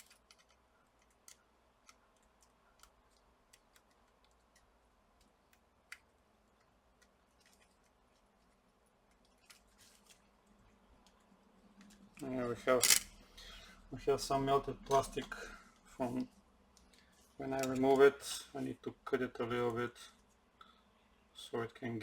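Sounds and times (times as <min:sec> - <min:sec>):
faint clicks of handled parts: 0:00.0 - 0:13.2, 0:14.8 - 0:18.1.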